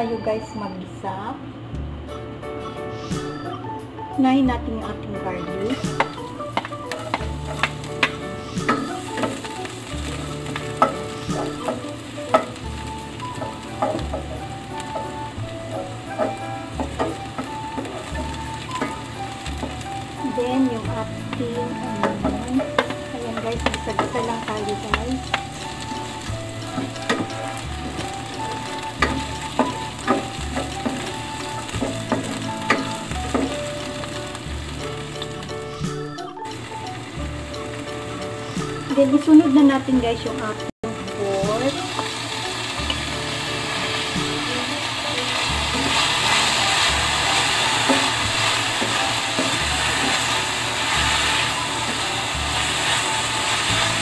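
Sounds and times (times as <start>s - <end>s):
background music: 0.0s - 54.0s
garlic and onion sizzling in oil: 4.2s - 54.0s
spatula scraping a pan: 21.8s - 34.1s, 45.2s - 54.0s.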